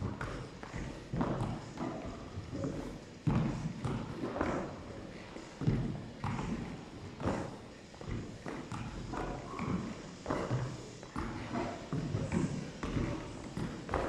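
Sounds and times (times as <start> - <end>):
faint movement noise: 0.0 - 14.0
irregular thuds: 0.0 - 14.0.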